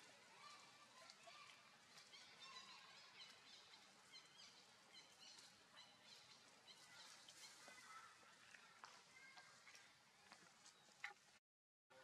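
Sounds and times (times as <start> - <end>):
faint bird chirping: 0.4 - 11.3.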